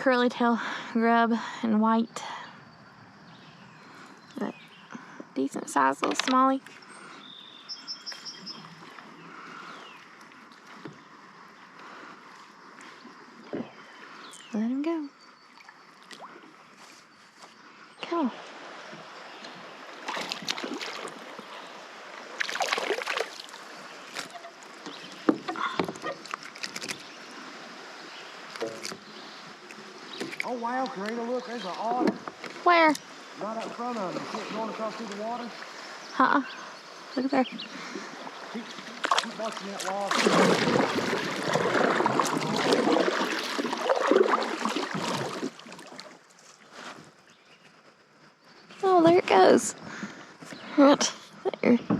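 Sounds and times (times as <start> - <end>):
paddle splashing water: 5.9 - 14.3, 18.1 - 47.3
river hiss: 15.6 - 47.2.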